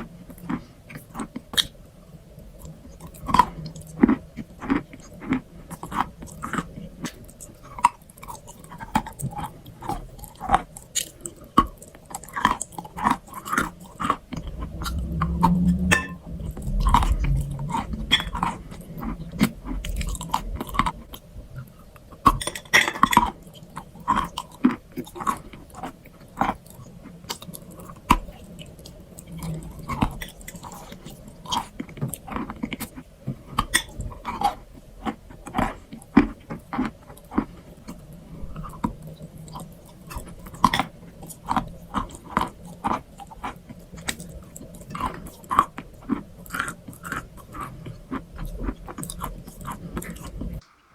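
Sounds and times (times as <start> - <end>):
crunchy chewing: 0.0 - 1.8, 2.4 - 50.6.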